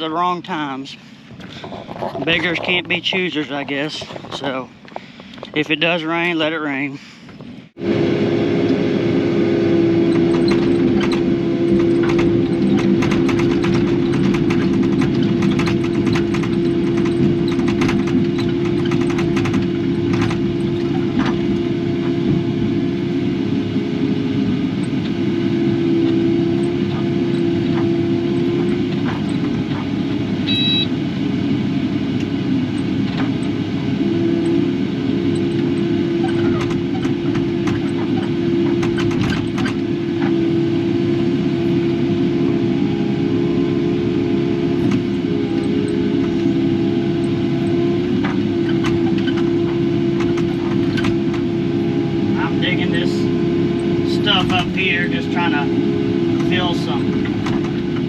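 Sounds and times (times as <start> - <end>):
excavator diesel engine droning: 0.0 - 58.0
machine knocks and clicks: 10.1 - 21.6, 35.4 - 40.4, 48.2 - 51.5, 57.1 - 58.0.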